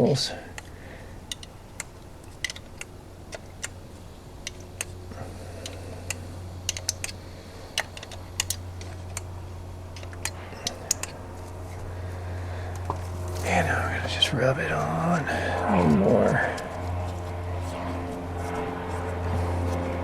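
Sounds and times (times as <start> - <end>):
steady low hum: 0.0 - 20.0
oil can pump clicking: 5.6 - 7.2.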